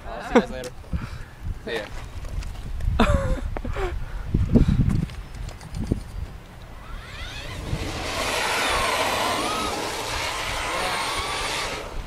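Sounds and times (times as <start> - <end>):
electric motor whining: 6.7 - 12.0
tyres hissing on ground: 6.8 - 12.0.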